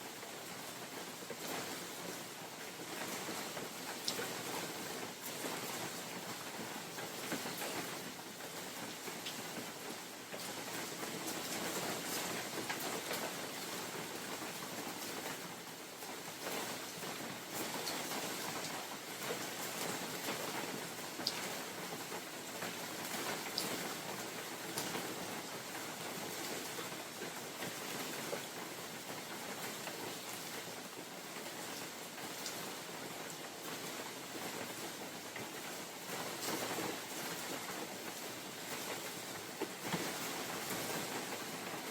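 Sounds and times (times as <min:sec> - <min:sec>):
steady rain in forest: 0:00.0 - 0:41.9.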